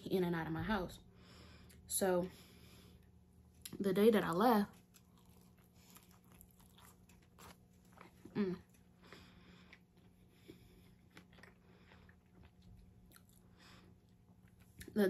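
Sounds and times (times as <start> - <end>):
chewing mouth sounds: 4.7 - 14.9.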